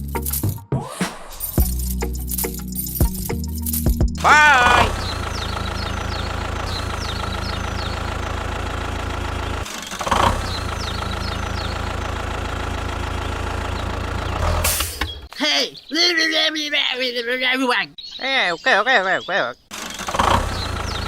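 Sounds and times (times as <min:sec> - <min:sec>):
small tractor engine idling: 0:04.2 - 0:15.3, 0:19.7 - 0:21.0.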